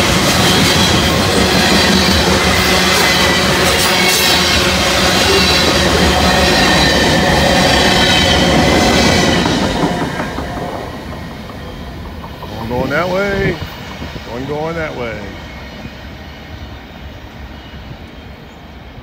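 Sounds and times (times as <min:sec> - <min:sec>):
freight train wheels clattering: 0:00.0 - 0:16.2
high wheel squeal: 0:00.3 - 0:18.6.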